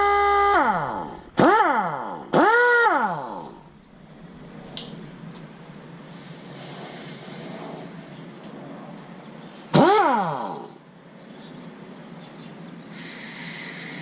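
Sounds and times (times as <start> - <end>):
pneumatic wrench whine: 0.0 - 4.5, 5.1 - 8.3, 9.7 - 10.7, 12.9 - 14.0
faint air hiss: 3.6 - 9.7, 12.6 - 14.0.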